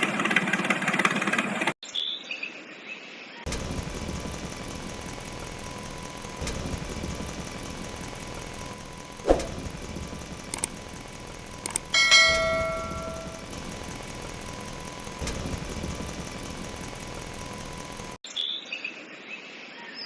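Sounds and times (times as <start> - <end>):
small engine running: 0.0 - 1.8, 3.5 - 18.2
light clicks: 10.4 - 11.9
bell-like metallic ring: 11.9 - 13.5.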